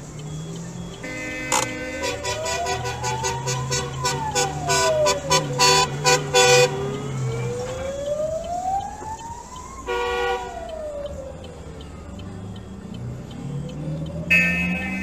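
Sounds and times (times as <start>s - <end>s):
emergency siren wailing: 0.0s - 15.0s
horn honking short blasts: 14.3s - 15.0s.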